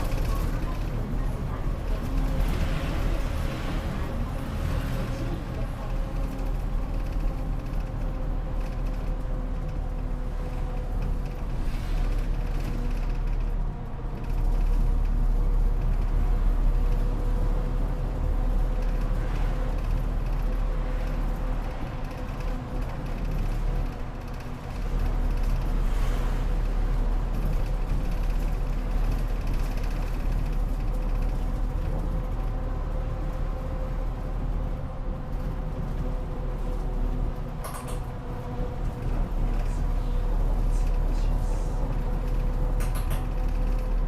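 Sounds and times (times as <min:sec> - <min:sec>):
bus engine and road noise: 0:00.0 - 0:44.0.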